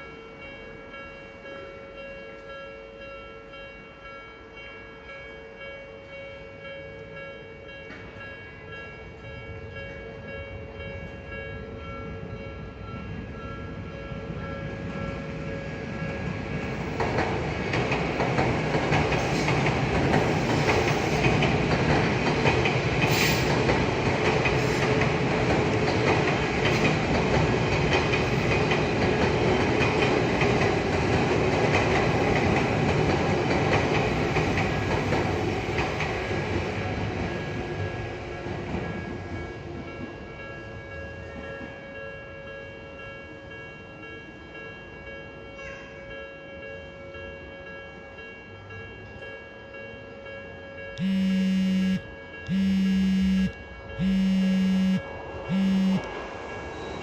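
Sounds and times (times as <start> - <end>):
train running noise: 10.4 - 40.4, 51.0 - 57.0
level-crossing alarm ringing: 51.0 - 56.1.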